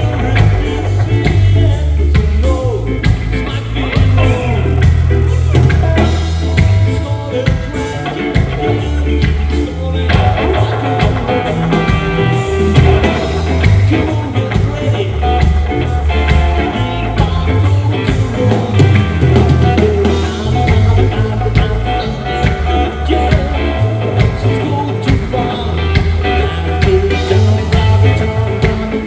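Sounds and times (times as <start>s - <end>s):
electric guitar: 0.0s - 29.0s
heavy bass guitar notes: 0.0s - 29.0s
drum hits: 10.2s - 14.8s.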